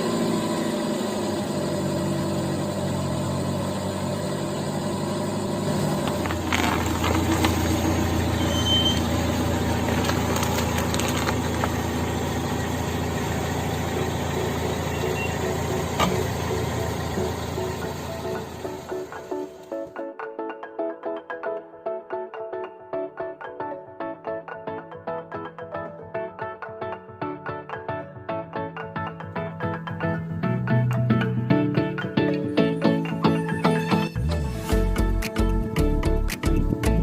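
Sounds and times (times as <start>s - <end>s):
car engine running: 0.0s - 19.7s.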